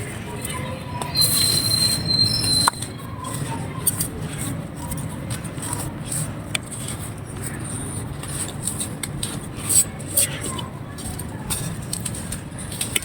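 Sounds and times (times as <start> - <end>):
high-pitched squeal with hiss: 1.2 - 2.8.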